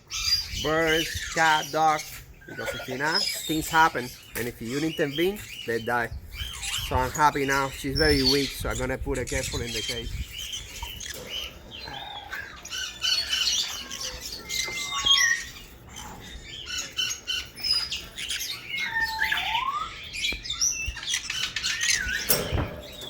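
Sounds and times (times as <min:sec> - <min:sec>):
pet birds chirping and squawking: 0:00.0 - 0:23.0
rising bird whistle: 0:18.8 - 0:22.6.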